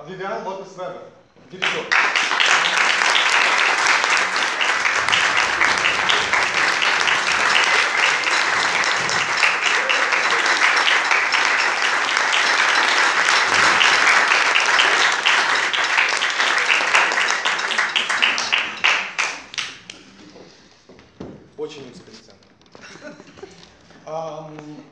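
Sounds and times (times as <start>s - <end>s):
audience applauding: 1.6s - 20.5s.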